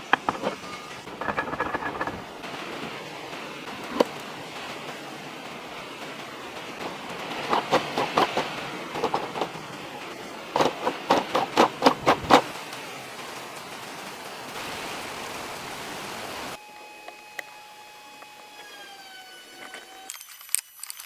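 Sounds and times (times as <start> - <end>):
tool knocking on wood: 0.0 - 2.3, 10.6 - 12.4
steady hiss: 2.2 - 16.9.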